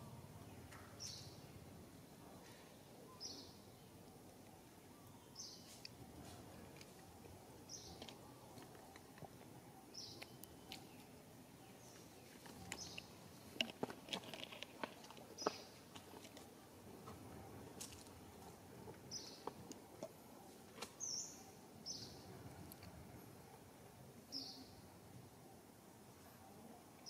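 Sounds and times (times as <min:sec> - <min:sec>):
faint outdoor background noise: 0:00.0 - 0:27.0
bird chirping: 0:00.4 - 0:05.9, 0:07.0 - 0:13.6, 0:15.3 - 0:15.9, 0:19.1 - 0:19.6, 0:21.0 - 0:22.3, 0:24.3 - 0:24.8.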